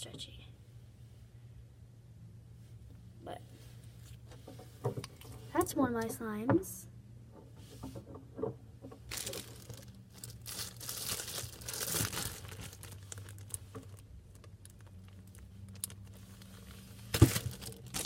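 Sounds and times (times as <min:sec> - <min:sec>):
slime container crinkling and rustling: 0:09.0 - 0:18.0.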